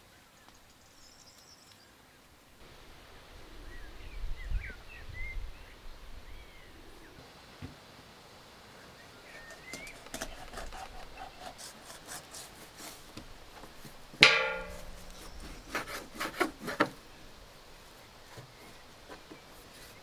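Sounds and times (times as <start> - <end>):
light scraping and clicking: 9.2 - 17.1
loud ringing strike: 14.2 - 15.6
sharp knocks: 14.2 - 16.9.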